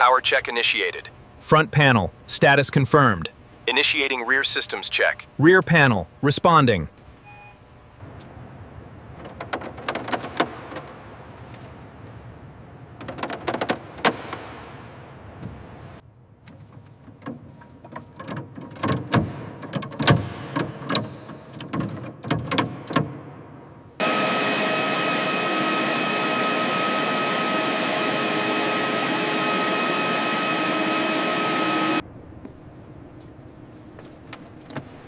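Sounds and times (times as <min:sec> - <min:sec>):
turbine whine: 0:00.0 - 0:08.4, 0:24.0 - 0:32.5.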